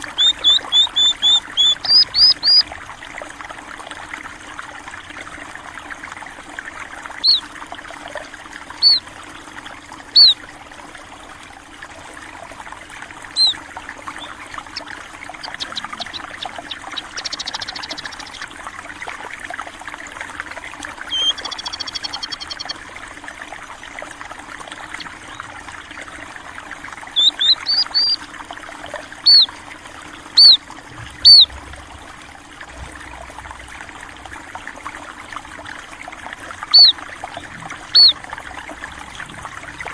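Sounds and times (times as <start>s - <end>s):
small birds chirping: 0.0s - 2.6s, 7.2s - 7.5s, 8.8s - 9.1s, 10.1s - 10.4s, 13.3s - 18.6s, 21.0s - 22.8s, 24.8s - 26.0s, 27.1s - 28.2s, 29.2s - 29.5s, 30.3s - 30.6s, 31.2s - 31.6s, 36.6s - 38.2s
trickle of running water: 0.0s - 39.9s.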